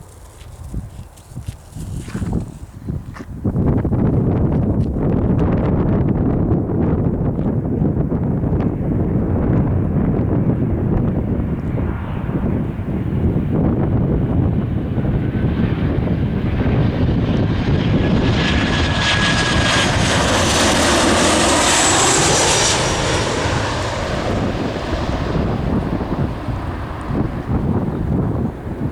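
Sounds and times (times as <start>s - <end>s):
wind buffeting microphone: 0.0s - 28.9s
jet engines whining and hissing: 8.4s - 28.9s.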